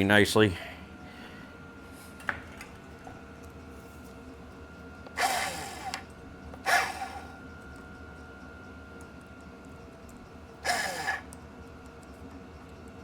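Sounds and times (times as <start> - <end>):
grease gun hissing squirts: 10.7 - 11.2.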